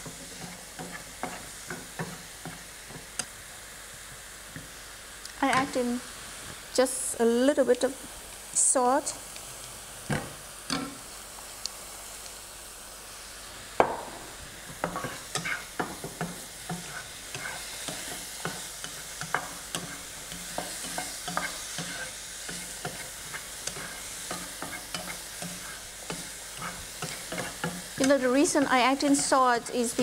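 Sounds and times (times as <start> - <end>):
utensil scraping a pan: 0.0 - 2.6, 14.8 - 30.0
pineapple sizzling in oil: 0.0 - 30.0.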